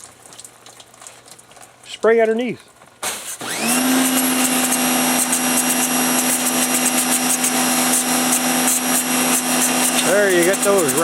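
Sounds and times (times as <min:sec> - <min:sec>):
pressure washer motor humming: 0:03.0 - 0:11.0
water jet spraying hiss: 0:04.0 - 0:11.0.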